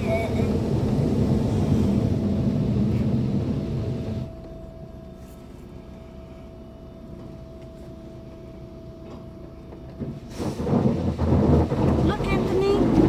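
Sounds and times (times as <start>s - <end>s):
faint constant hum: 0.0s - 10.4s
car wash machinery rumble: 0.0s - 13.0s.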